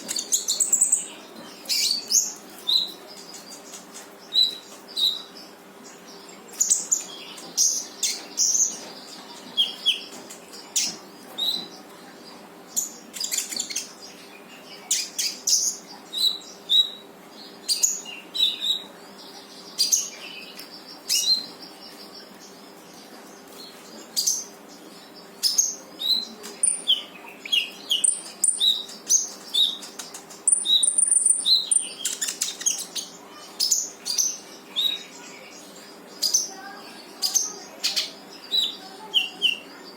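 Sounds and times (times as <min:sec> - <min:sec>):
songbird chirping and whistling: 0:30.5 - 0:33.0.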